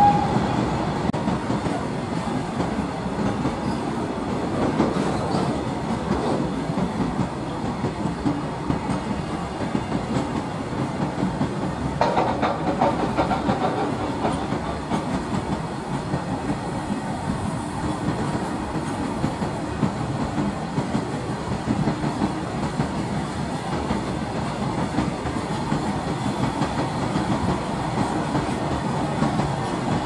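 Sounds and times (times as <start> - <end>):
freight train rumbling past: 0.0 - 30.0
wheels clacking over rail joints: 4.6 - 16.6.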